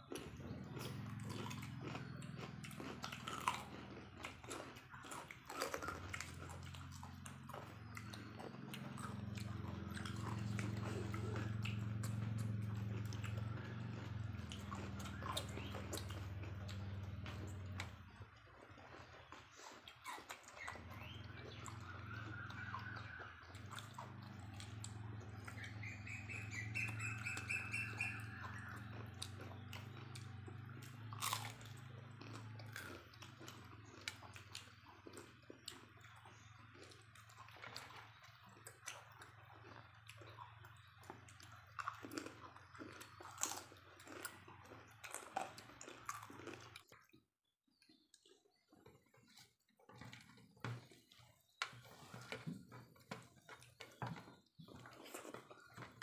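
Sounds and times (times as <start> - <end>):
people chewing and slurping: 0.0 - 47.2, 47.8 - 56.0
bird twittering: 20.6 - 30.2.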